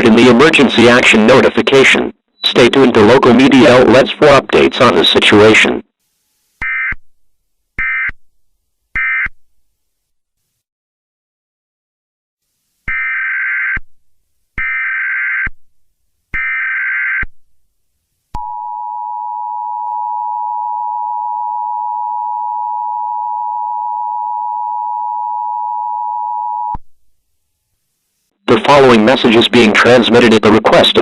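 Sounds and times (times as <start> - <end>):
two-tone attention signal: 18.4 - 26.8.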